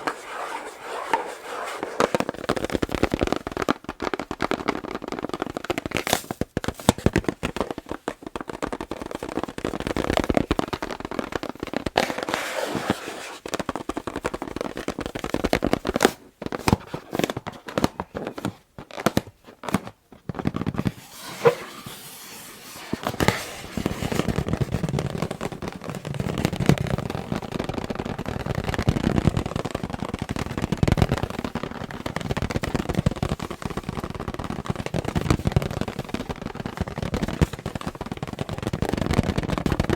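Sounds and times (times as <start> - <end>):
rubbing on balloon: 0.0 - 2.8, 12.0 - 13.6, 20.8 - 26.6.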